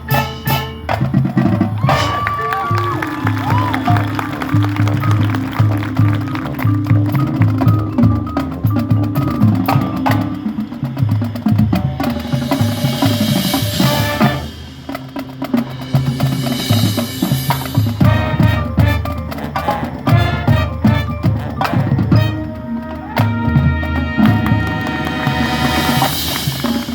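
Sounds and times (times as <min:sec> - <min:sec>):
quick drum strokes: 0:00.0 - 0:22.4
band playing rhythmic music: 0:00.0 - 0:26.9.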